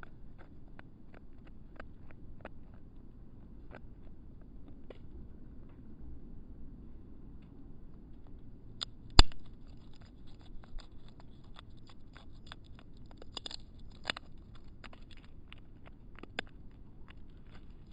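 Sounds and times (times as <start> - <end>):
birds pecking at seed feeder: 8.2 - 17.9.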